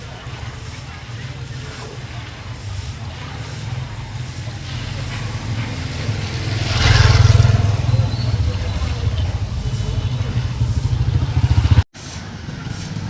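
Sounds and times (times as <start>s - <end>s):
vehicle engine passing close: 0.0s - 13.0s.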